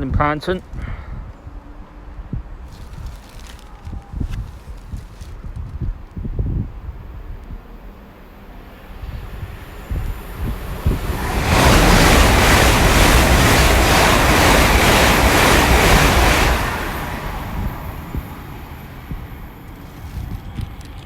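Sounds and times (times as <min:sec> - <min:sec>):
train passing at speed: 0:06.7 - 0:21.0.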